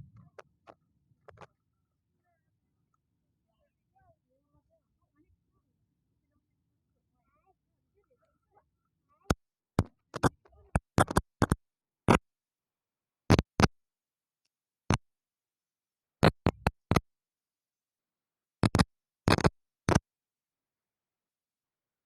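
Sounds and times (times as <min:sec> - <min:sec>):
sharp clicks and knocks: 0:09.3 - 0:12.2, 0:13.3 - 0:13.7, 0:16.2 - 0:17.1, 0:18.6 - 0:20.0.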